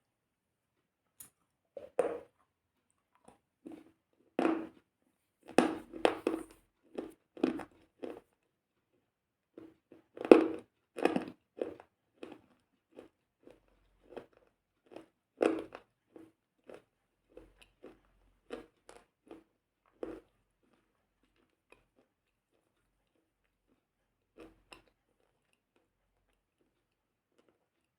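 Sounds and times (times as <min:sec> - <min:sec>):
chewing something crunchy: 0:09.6 - 0:27.9.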